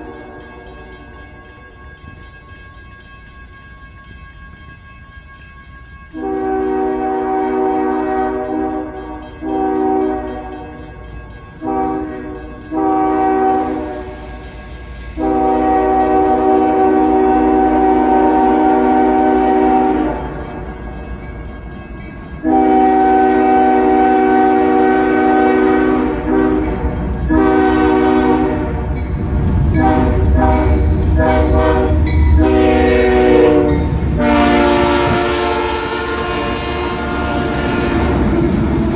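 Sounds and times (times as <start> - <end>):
deep locomotive engine rumble: 0.0 - 38.9
rattling train wheels: 0.0 - 38.9
locomotive air horn blasts: 6.2 - 10.6, 11.6 - 14.4, 15.2 - 20.4, 22.4 - 28.9, 29.7 - 38.3.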